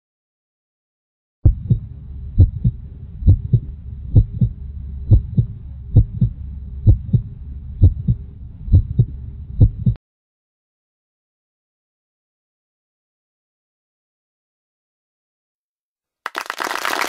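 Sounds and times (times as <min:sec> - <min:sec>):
heartbeat thumps: 0:01.4 - 0:10.0
low hum: 0:01.4 - 0:10.0.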